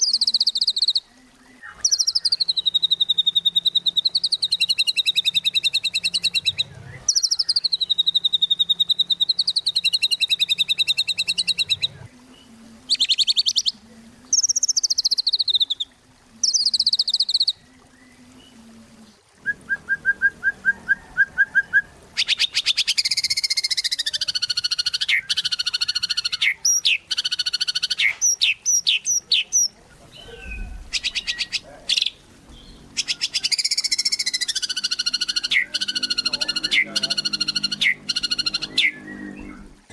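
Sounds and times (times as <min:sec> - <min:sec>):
songbird singing trills and whistles: 0:00.0 - 0:39.9.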